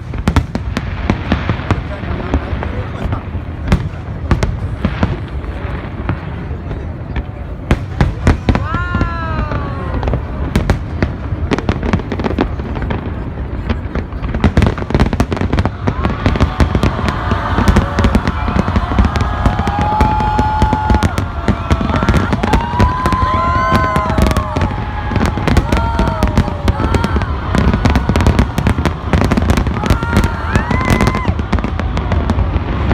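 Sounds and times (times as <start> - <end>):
fireworks bangs and crackles: 0.0 - 32.9
onlookers calling out: 8.0 - 10.8, 14.5 - 32.9.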